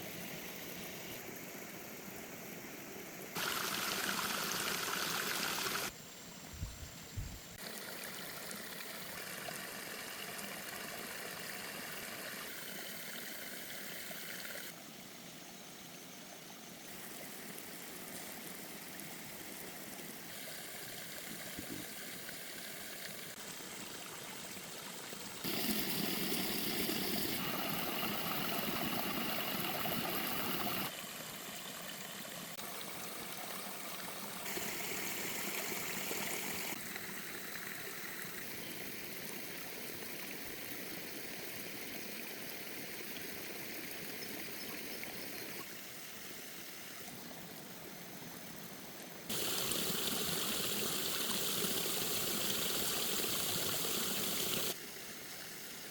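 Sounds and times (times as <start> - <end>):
stream water rushing: 3.4 - 5.9, 19.2 - 38.1, 49.3 - 55.8.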